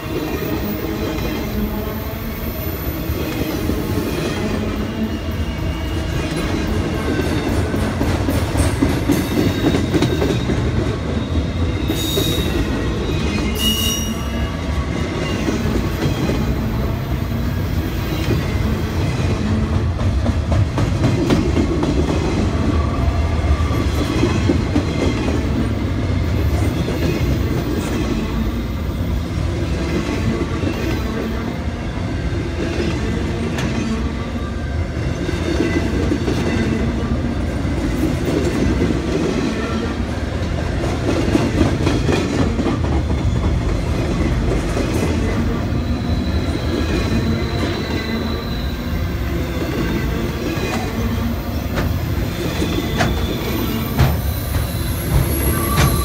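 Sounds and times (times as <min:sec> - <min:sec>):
train wheels rumbling on rail: 0:00.0 - 0:56.0
high wheel squeals: 0:09.5 - 0:15.6, 0:45.7 - 0:50.7, 0:51.3 - 0:56.0.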